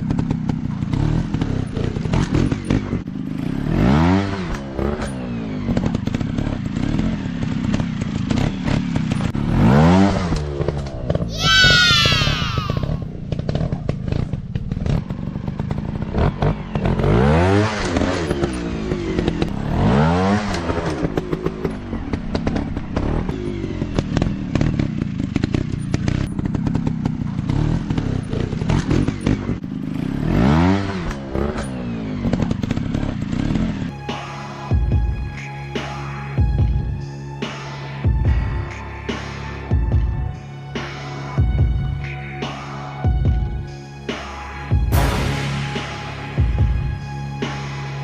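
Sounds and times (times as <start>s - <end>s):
dirt bike engine revving: 0.0s - 33.9s.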